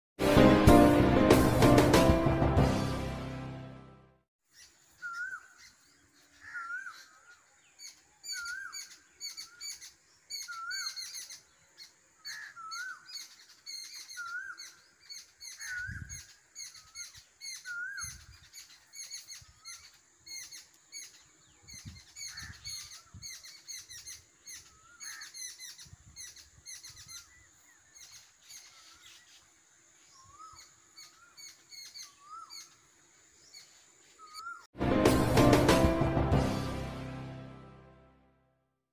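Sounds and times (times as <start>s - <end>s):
high bird chirps: 4.5s - 29.4s, 33.5s - 34.7s.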